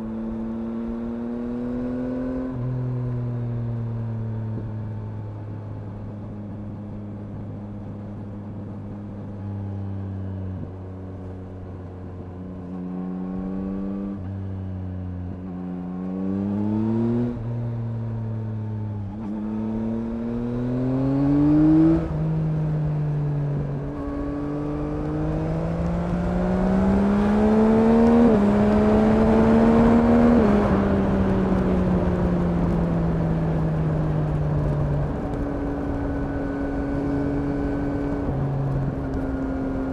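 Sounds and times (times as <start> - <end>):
motorcycle engine accelerating: 0.0 - 39.9
wind noise: 19.2 - 39.9.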